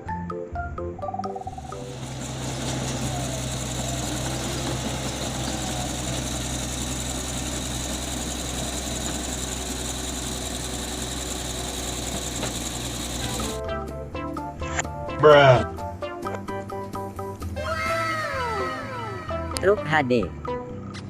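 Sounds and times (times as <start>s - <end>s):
diesel engine humming: 1.4s - 13.6s.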